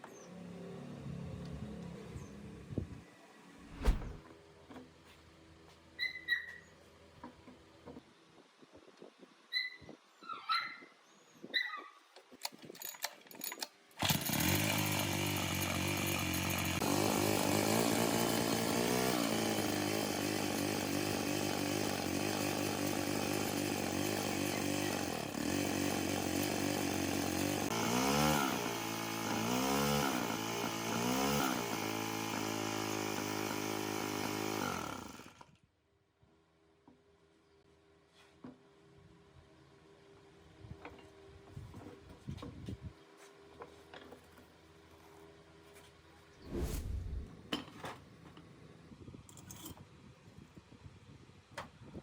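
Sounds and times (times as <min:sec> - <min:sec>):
small gasoline engine running: 0:14.0 - 0:35.5.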